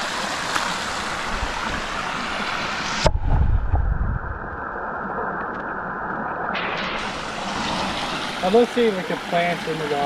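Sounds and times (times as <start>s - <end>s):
rushing creek water: 0.0s - 3.1s, 4.8s - 10.0s
low rumbling: 2.9s - 8.4s.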